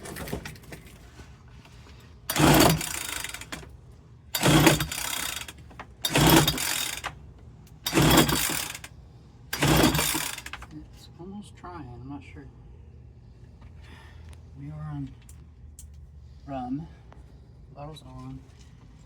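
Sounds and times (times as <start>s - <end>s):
leaf blower engine cranking: 2.3s - 3.7s, 4.4s - 7.2s, 7.8s - 8.9s, 9.5s - 10.7s.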